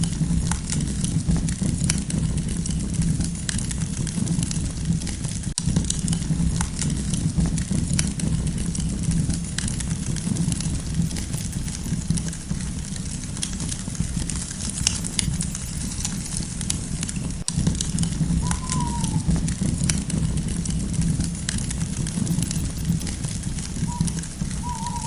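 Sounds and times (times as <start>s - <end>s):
low fire rumble: 0.1s - 24.7s
campfire crackling: 5.6s - 25.0s.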